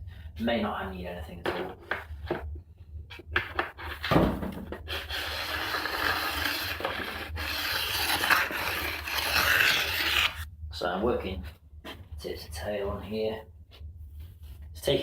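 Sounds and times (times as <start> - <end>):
file scraping metal edge: 4.9 - 10.4.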